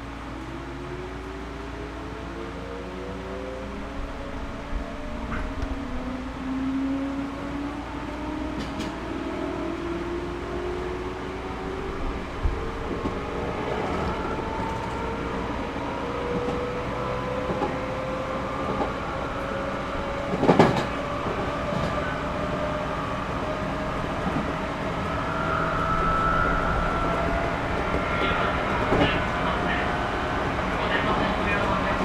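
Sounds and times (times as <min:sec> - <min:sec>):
train wheels rumbling: 0:08.4 - 0:10.1, 0:10.8 - 0:32.0
traction motor whine: 0:18.4 - 0:32.0.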